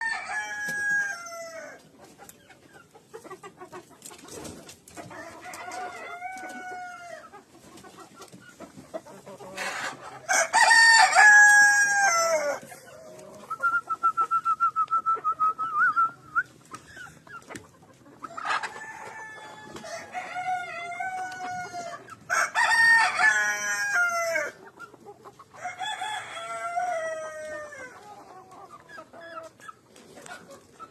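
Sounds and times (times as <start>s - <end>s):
rooster crowing: 0.0s - 1.8s, 10.3s - 12.6s, 18.6s - 24.6s, 25.6s - 27.9s
chicken clucking: 0.0s - 30.9s.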